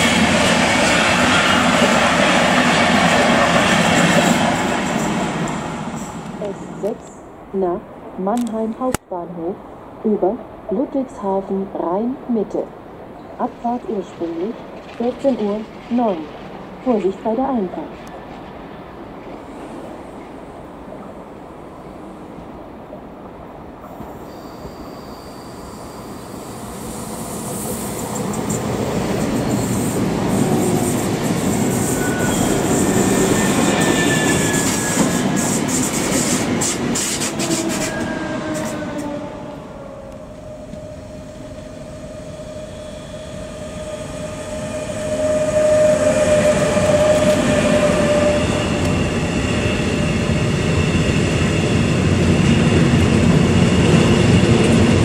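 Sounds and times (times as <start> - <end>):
freight train wagons rumbling: 0.0 - 7.5, 12.8 - 19.6, 27.9 - 55.0
electric train arriving: 0.0 - 8.9, 12.6 - 55.0
wheel squeal: 24.3 - 26.3, 31.8 - 35.5, 42.0 - 51.0.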